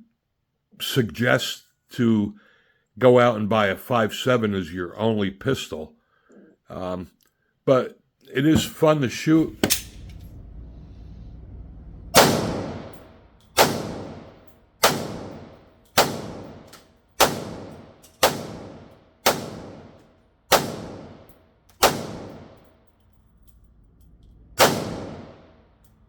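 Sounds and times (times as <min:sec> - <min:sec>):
pistol shots with echo: 0:12.2 - 0:13.0, 0:13.6 - 0:22.6, 0:24.6 - 0:25.6.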